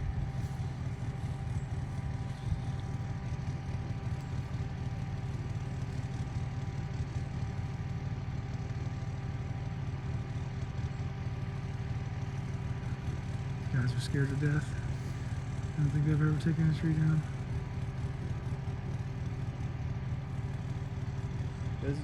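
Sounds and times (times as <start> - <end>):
faint steady hum: 0.0 - 22.0
vehicle engine idling: 0.0 - 22.0.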